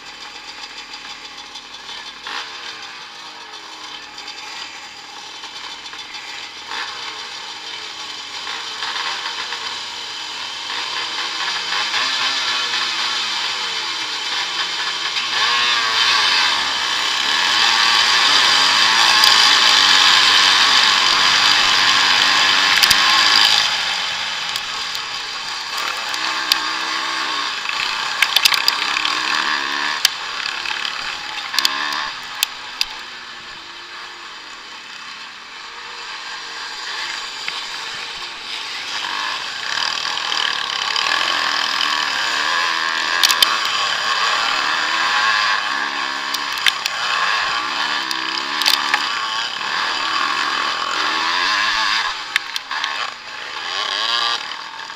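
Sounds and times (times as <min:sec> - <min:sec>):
motorcycle engines revving: 0:00.0 - 0:54.9
sharp clicks: 0:18.4 - 0:26.9, 0:27.5 - 0:33.0, 0:43.2 - 0:43.8, 0:46.3 - 0:47.2, 0:48.0 - 0:49.2, 0:51.9 - 0:53.2.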